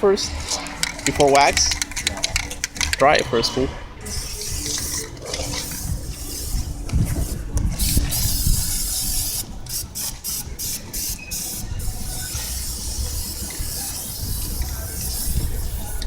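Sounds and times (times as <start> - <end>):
spray can hissing: 4.1 - 16.0.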